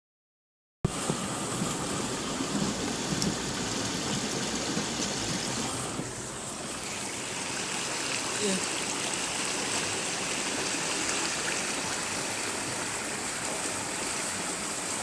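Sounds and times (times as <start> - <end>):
heavy rain on hard surfaces: 0.9 - 15.0.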